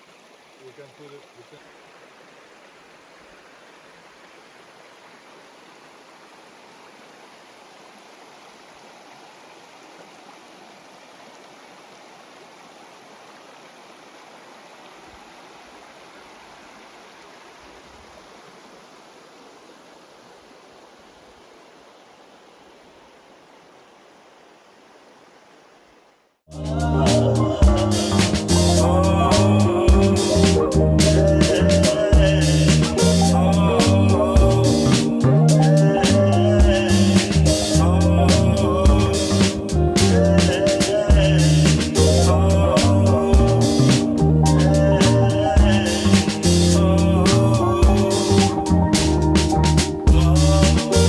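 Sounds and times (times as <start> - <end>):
stream water rushing: 0.0 - 51.0.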